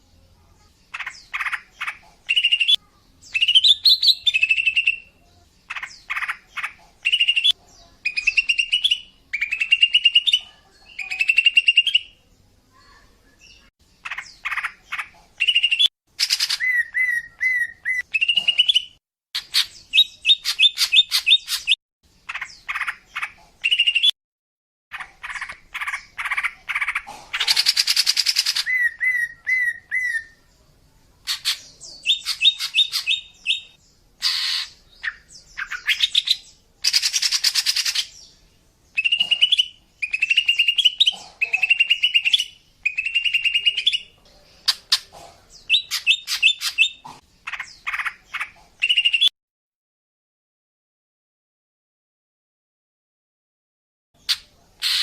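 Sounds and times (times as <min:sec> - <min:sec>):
bird chirps and trills: 0:00.6 - 0:24.2, 0:24.9 - 0:49.3, 0:54.2 - 0:55.0
harsh raspy bird call: 0:31.3 - 0:36.2, 0:54.2 - 0:55.0.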